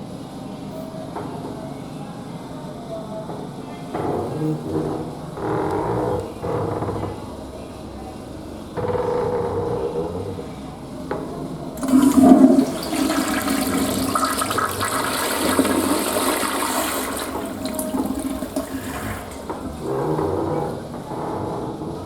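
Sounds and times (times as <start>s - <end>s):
toilet flush click: 11.2s - 21.1s
toilet water rushing: 11.8s - 21.0s.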